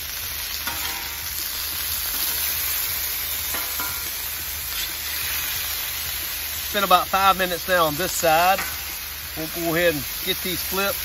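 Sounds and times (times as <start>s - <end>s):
chicken sizzling on a griddle: 0.0s - 11.0s
metal spatulas scraping griddle: 0.6s - 1.2s, 4.7s - 5.6s.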